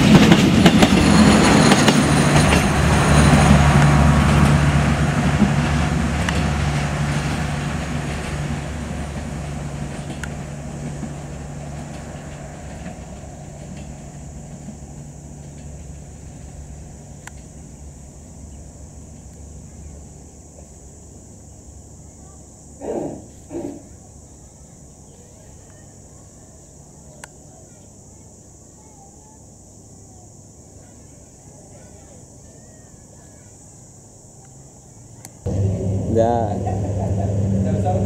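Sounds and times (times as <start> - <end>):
train wheels rumbling on rails: 0.0 - 20.8, 35.5 - 38.0.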